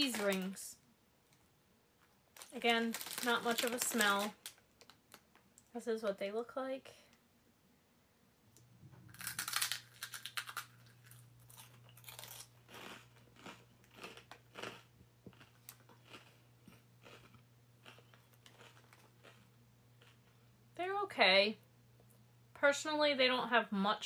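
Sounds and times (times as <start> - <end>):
crunchy snack being chewed: 9.1 - 20.4.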